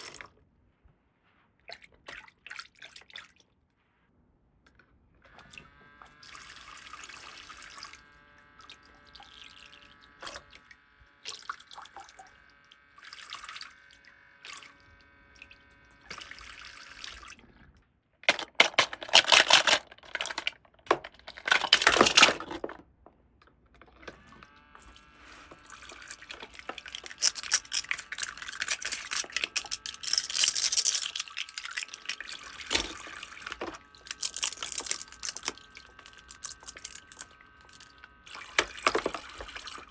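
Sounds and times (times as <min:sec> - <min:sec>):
water running and splashing: 0:25.2 - 0:39.9.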